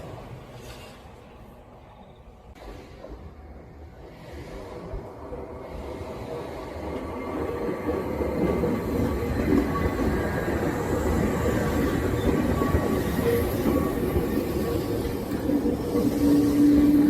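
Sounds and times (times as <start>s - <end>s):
train wheels rumbling on rails: 2.5s - 17.0s.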